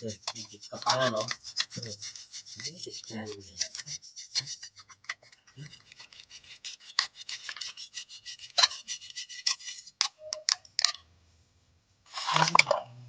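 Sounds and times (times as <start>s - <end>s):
hand tool scraping metal part: 0.0s - 10.3s.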